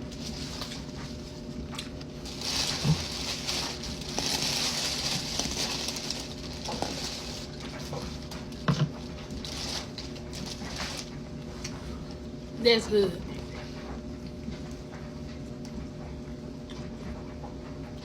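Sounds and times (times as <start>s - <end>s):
chewing food: 0.2s - 12.2s, 13.2s - 18.0s
rustling: 2.2s - 8.6s, 9.2s - 11.2s.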